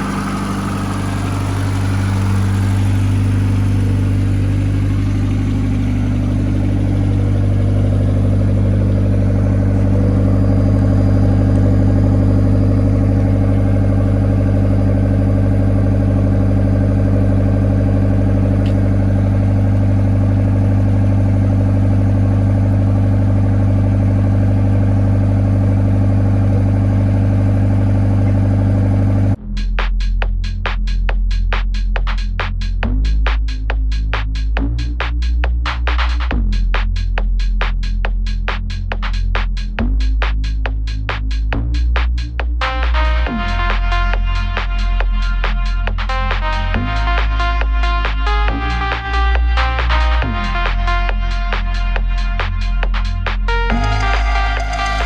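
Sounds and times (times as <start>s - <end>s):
car engine running steadily: 0.0s - 29.4s, 31.9s - 55.0s
music: 29.4s - 55.0s.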